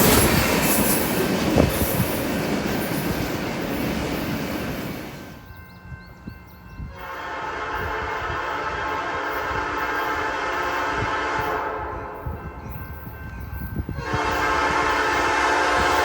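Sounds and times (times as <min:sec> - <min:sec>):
freight train wheel and rail noise: 0:00.0 - 0:16.0
locomotive horn chord: 0:06.8 - 0:12.5, 0:14.0 - 0:16.0.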